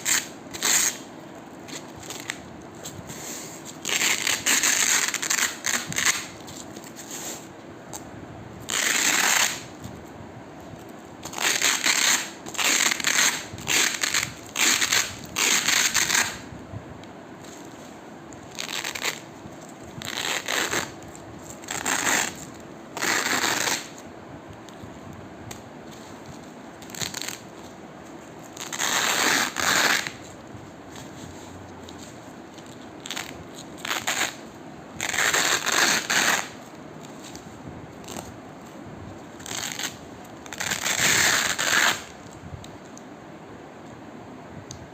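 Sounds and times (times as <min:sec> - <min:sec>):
velcro ripping apart: 0:00.0 - 0:01.1, 0:01.7 - 0:03.0, 0:03.7 - 0:07.4, 0:08.6 - 0:09.7, 0:11.2 - 0:16.4, 0:18.5 - 0:19.3, 0:20.0 - 0:24.0, 0:26.0 - 0:27.6, 0:28.4 - 0:30.4, 0:32.0 - 0:34.4, 0:35.0 - 0:37.4, 0:38.0 - 0:38.4, 0:39.4 - 0:42.3.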